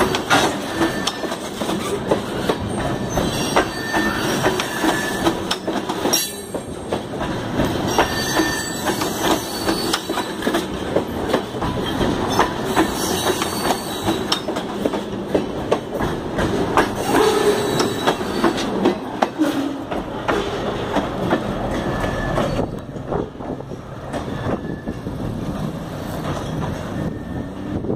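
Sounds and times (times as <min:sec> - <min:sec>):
train wheels clattering on track: 0:00.0 - 0:27.9
thin wheel squeal: 0:03.1 - 0:05.3, 0:12.8 - 0:14.2.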